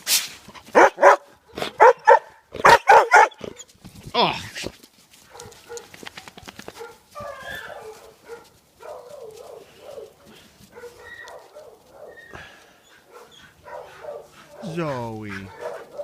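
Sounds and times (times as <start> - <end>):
dogs barking and whining: 0.6 - 3.8, 5.3 - 16.0.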